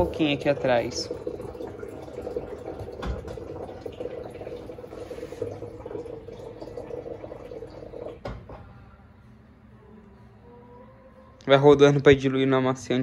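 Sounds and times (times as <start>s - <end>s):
washing machine sloshing and churning: 0.0s - 8.5s.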